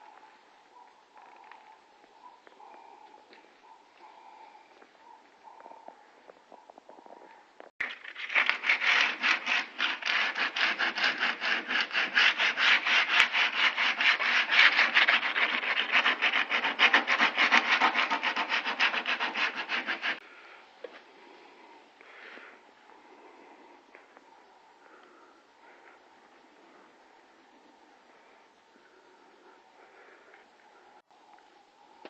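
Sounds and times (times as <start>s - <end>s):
sandpaper rubbing on car panel: 8.2s - 20.2s.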